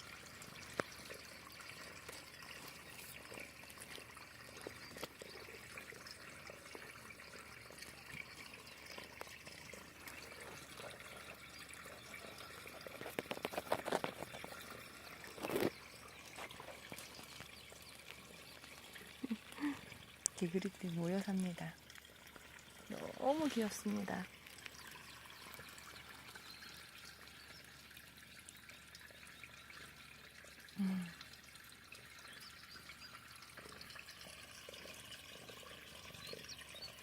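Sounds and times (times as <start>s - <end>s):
water trickling into a pond: 0.0s - 37.0s.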